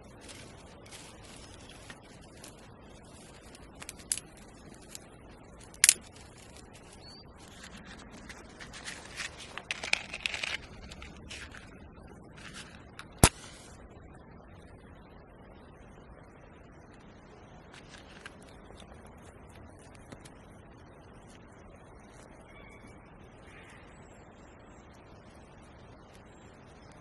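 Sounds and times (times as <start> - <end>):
rustling handling noises: 0.0 - 13.8, 17.6 - 20.6
sharp cracks: 3.5 - 12.0, 12.6 - 13.6.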